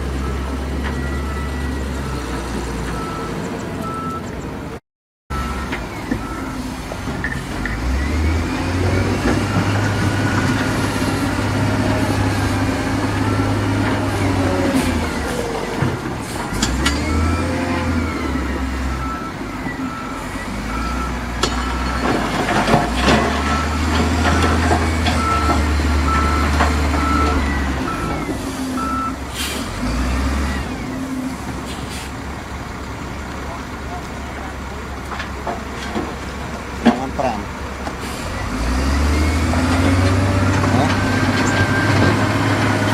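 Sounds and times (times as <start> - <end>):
diesel machinery engine running: 0.0 - 42.9
reversing alarm beeping: 0.2 - 4.4, 5.3 - 8.4, 16.4 - 22.3, 23.4 - 29.2.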